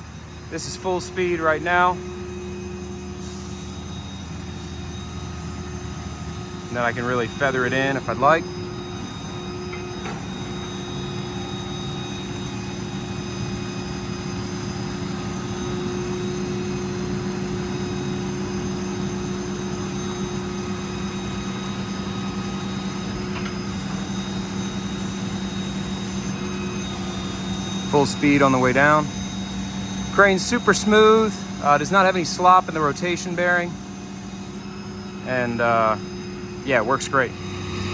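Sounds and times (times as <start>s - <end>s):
diesel engine running: 0.0s - 37.9s
hydraulic machine whine: 0.0s - 37.9s.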